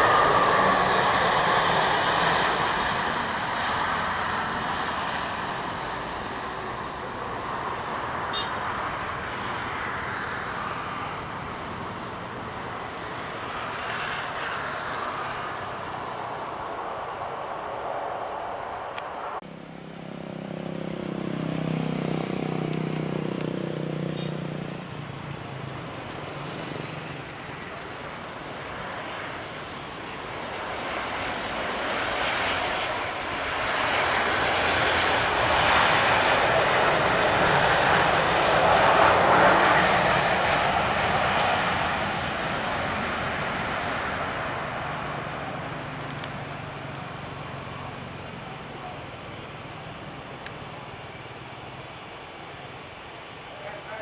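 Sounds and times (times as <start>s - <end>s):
high jet whine: 0.0s - 23.4s
jet airliner engine roar: 0.0s - 54.0s.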